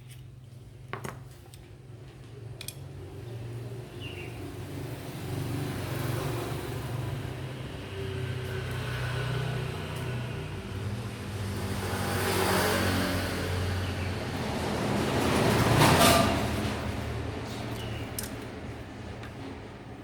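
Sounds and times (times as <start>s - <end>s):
small clicks: 17.7s - 18.5s.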